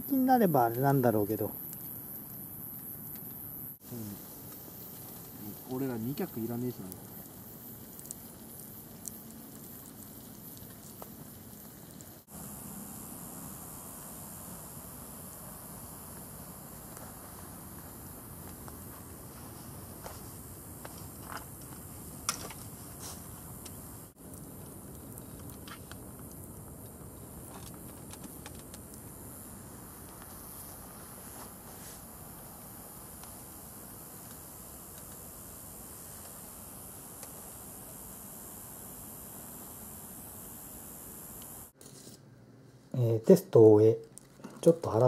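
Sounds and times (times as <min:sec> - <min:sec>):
wood fire hissing and crackling: 0:00.0 - 0:45.0.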